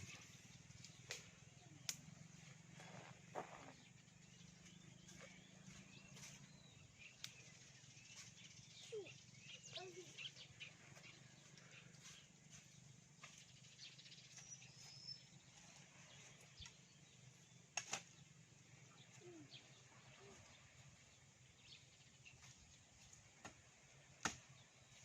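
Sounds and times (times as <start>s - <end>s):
steady low hum: 0.0s - 9.7s
faint bird chirps: 0.0s - 23.2s.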